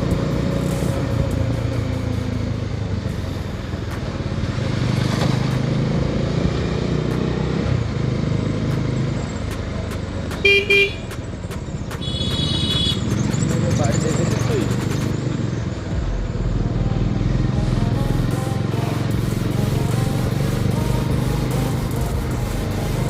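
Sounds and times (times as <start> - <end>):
motorcycle engine and road noise: 0.0 - 23.0
higher-pitched horn: 10.4 - 11.1, 16.7 - 23.0
vehicle horn beeping: 10.4 - 11.1, 12.0 - 13.2.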